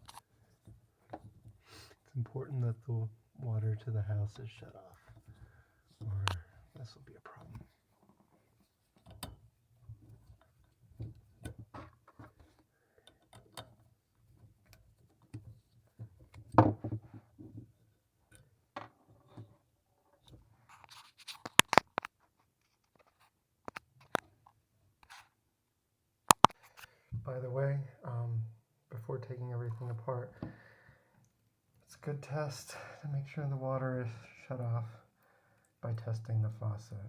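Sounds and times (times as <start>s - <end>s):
screwdriver clicks and scrapes: 20.7s - 22.1s, 26.3s - 26.6s.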